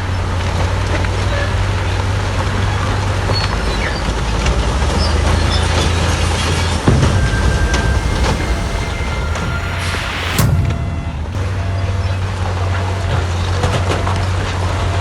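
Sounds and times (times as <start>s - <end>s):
heavy diesel machinery droning: 0.0s - 15.0s
metal clanks: 6.4s - 13.2s
thump: 6.5s - 12.5s.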